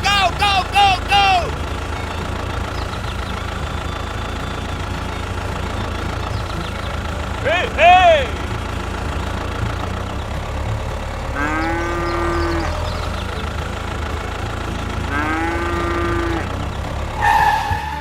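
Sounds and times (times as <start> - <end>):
small engine idling: 0.0 - 18.0
cow mooing: 11.4 - 12.7, 15.1 - 16.5.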